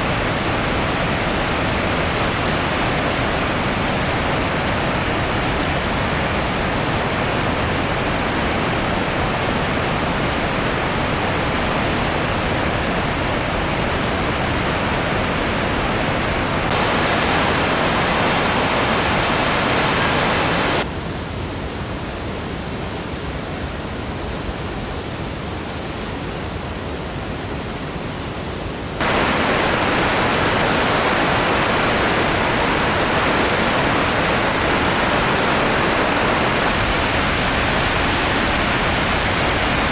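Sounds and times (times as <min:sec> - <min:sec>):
waterfall rushing: 0:00.0 - 0:20.8, 0:29.0 - 0:39.9.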